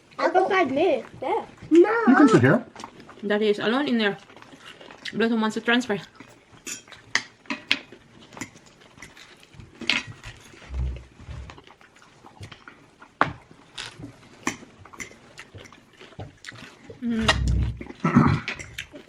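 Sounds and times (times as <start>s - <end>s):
person chewing: 1.0s - 3.2s, 4.2s - 5.2s, 6.0s - 19.0s
low thuds: 10.7s - 11.6s.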